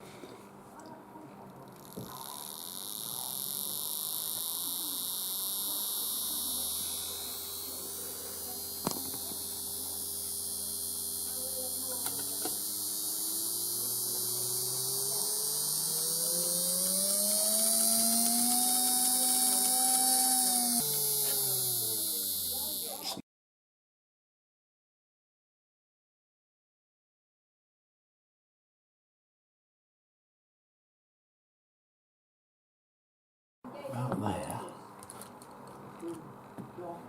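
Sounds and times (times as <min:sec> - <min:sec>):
electrical mains hum: 0:00.0 - 0:23.1
rising whine: 0:02.2 - 0:23.0.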